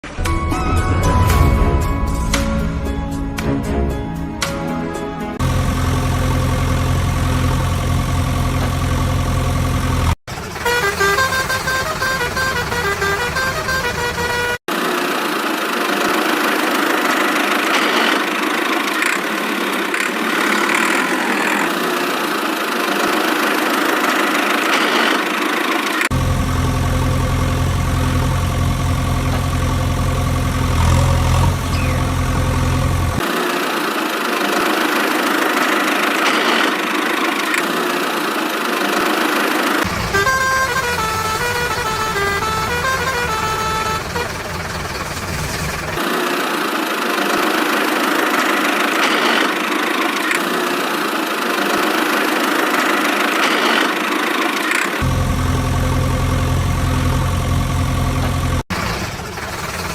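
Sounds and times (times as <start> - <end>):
low steady engine hum: 5.4 - 14.6, 26.1 - 33.2, 39.9 - 46.0, 55.0 - 59.9
horn honks: 10.4 - 14.6, 39.8 - 46.0.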